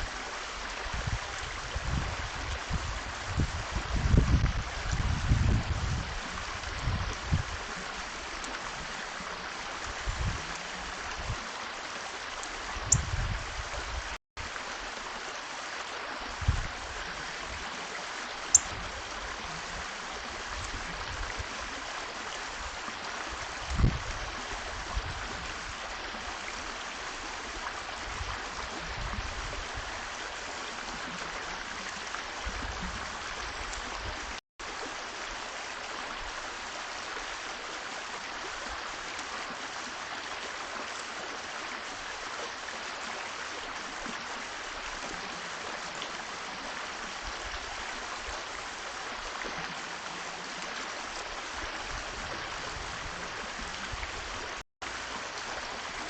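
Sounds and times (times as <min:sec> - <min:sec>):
running water hiss: 0:00.0 - 0:56.0
wind buffeting microphone: 0:00.8 - 0:07.7, 0:09.9 - 0:11.4, 0:12.8 - 0:14.2, 0:16.4 - 0:16.9, 0:23.4 - 0:25.8, 0:28.0 - 0:30.0, 0:51.8 - 0:54.6.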